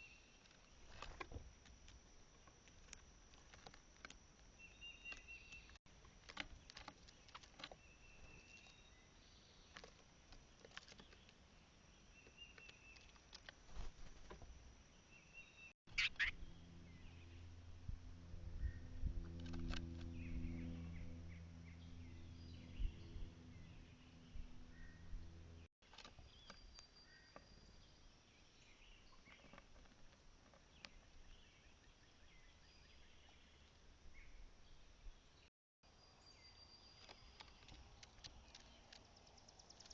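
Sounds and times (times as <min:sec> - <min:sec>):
birds chirping: 0:00.0 - 0:01.3, 0:02.3 - 0:17.8, 0:18.5 - 0:29.9
birds pecking on feeder: 0:00.0 - 0:14.4, 0:37.0 - 0:39.9
low outdoor rumble: 0:15.9 - 0:25.7.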